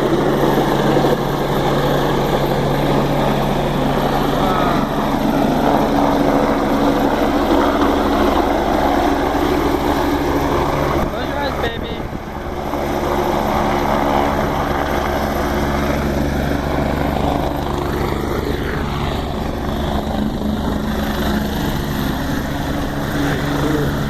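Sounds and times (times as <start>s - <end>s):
helicopter drone: 0.0s - 24.0s.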